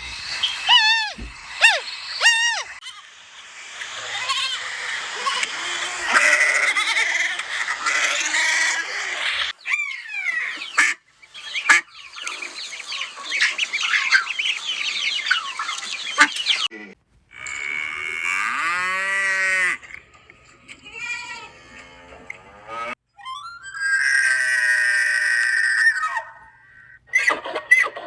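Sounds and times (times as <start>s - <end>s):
quick downward-sliding calls: 0.0s - 2.8s
flock of animals calling: 0.0s - 28.0s.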